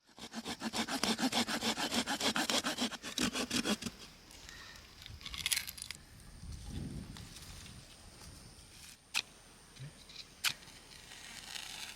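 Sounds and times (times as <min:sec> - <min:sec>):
hand saw cutting wood: 0:00.0 - 0:04.0.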